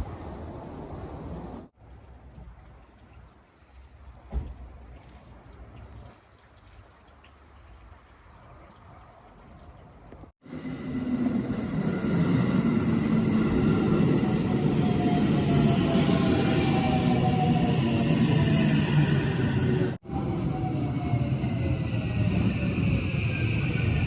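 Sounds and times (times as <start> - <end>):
thump: 4.3 - 4.6
train rumbling: 10.4 - 24.0.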